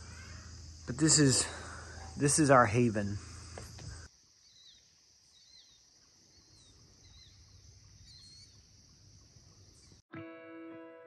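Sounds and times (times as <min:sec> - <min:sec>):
high insect drone: 0:00.0 - 0:10.0
bird warbling chirp: 0:04.4 - 0:08.6.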